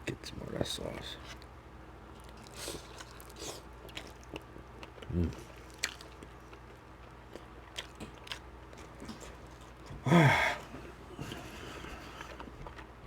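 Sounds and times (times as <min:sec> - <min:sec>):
wet chewing mouth clicks: 0:02.2 - 0:09.9.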